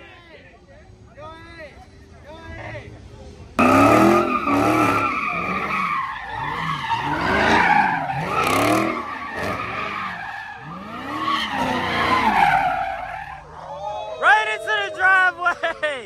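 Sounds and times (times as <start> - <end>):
car engine revving: 3.5 - 13.4
tyres squealing on pavement: 3.6 - 15.1.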